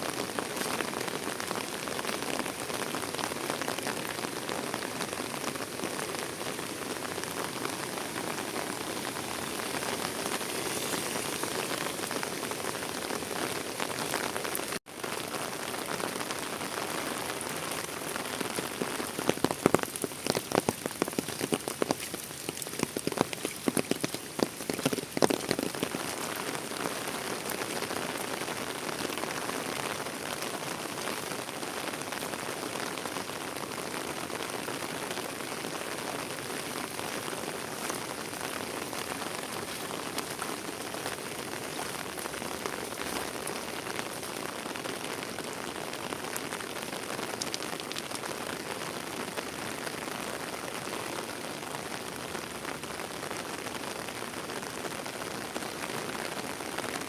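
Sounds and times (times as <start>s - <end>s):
heavy rain falling: 0.0s - 57.0s
sharp raindrops tapping: 0.1s - 51.3s.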